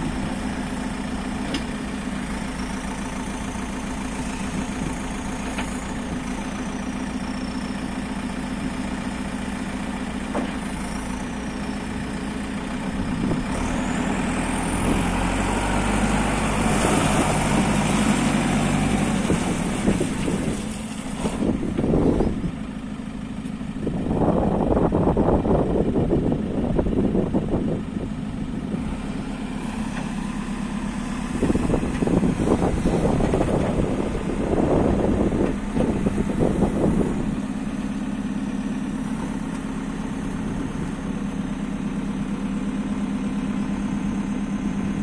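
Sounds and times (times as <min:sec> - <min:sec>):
diesel engine idling and revving: 0:00.0 - 0:45.0.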